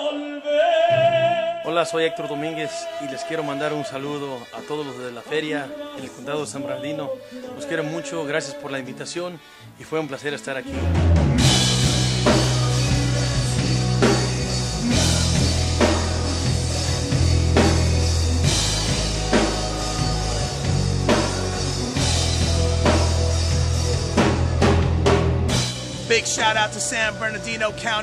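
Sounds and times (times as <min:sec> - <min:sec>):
rock music: 0:10.2 - 0:28.0
drum kit: 0:10.7 - 0:28.0
heavy sustained bass line: 0:10.8 - 0:27.7.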